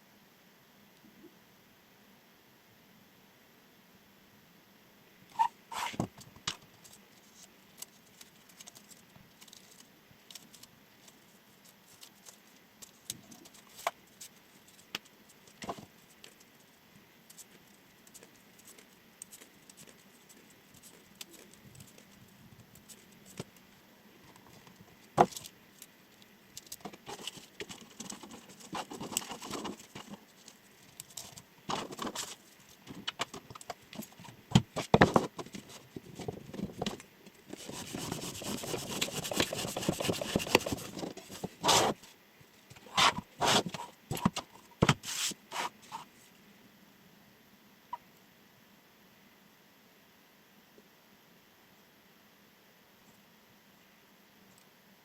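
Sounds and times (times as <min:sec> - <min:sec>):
knife scraping cuts: 0:37.6 - 0:42.0, 0:42.8 - 0:44.3.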